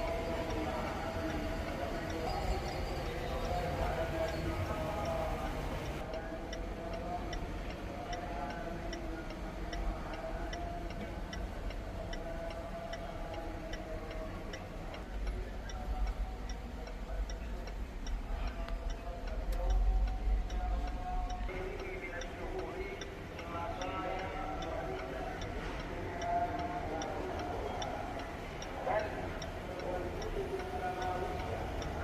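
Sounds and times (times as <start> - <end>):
indicator relay ticking: 0.0 - 32.0.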